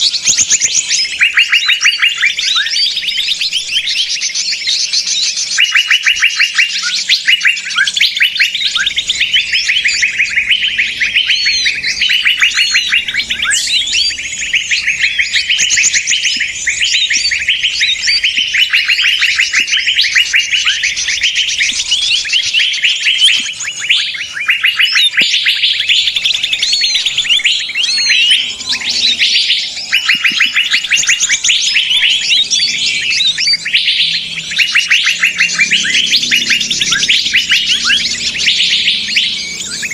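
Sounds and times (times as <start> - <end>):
chorus of small birds chirping: 0.0 - 39.9.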